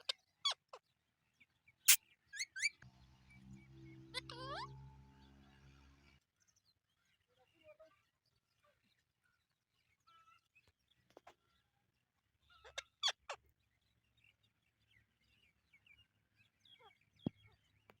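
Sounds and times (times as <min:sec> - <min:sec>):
parakeets chirping: 0:02.6 - 0:06.2.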